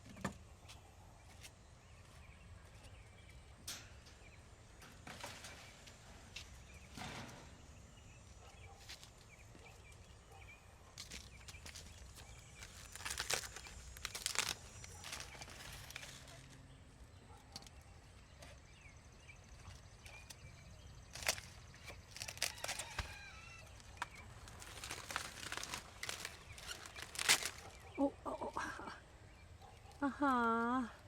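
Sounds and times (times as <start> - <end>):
poultry rustling and scuffling: 4.7 - 10.3, 10.9 - 17.1, 19.5 - 28.0.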